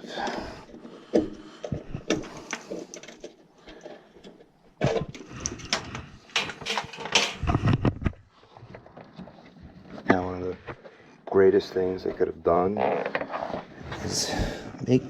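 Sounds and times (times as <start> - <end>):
hard parts clicking and rattling: 0.1 - 8.2.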